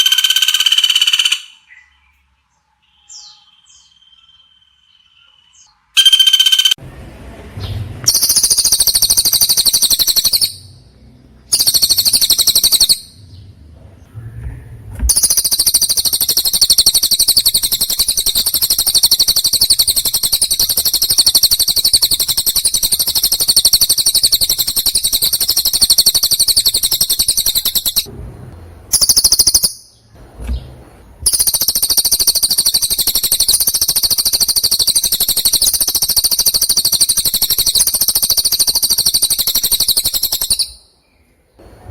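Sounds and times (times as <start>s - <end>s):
songbird chattering trill: 6.0s - 6.8s, 8.1s - 10.8s, 11.5s - 13.2s, 15.1s - 28.1s, 28.9s - 30.0s, 31.2s - 40.8s.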